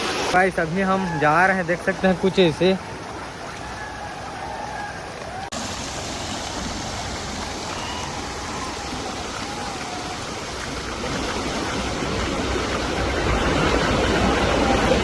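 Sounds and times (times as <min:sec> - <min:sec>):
waterfall rushing water: 0:00.0 - 0:15.0.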